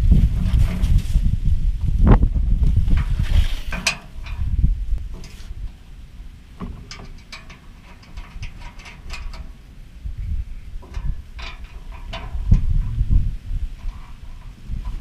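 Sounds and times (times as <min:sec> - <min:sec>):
wind buffeting microphone: 0:00.0 - 0:15.0
metallic clicks and knocks of tools: 0:06.6 - 0:09.5.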